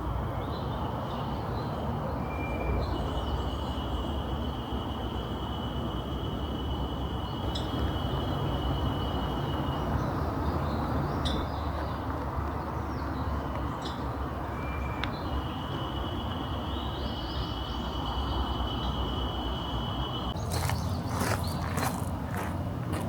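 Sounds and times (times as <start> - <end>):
low forest rush: 20.3 - 23.0.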